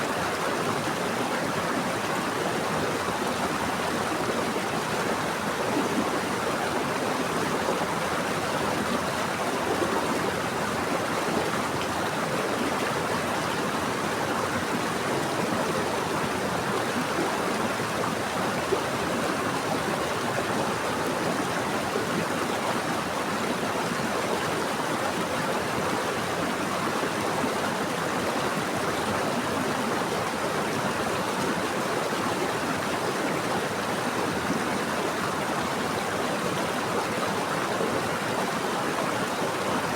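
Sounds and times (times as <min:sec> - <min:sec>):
stream water over rocks: 0:00.0 - 0:39.9.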